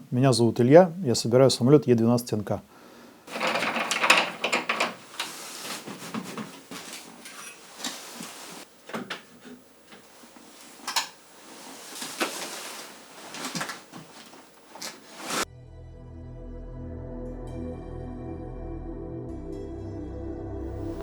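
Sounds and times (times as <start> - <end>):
clattering knocks and clicks: 3.3 - 8.0, 8.7 - 11.3
rustling scrape: 3.3 - 15.5.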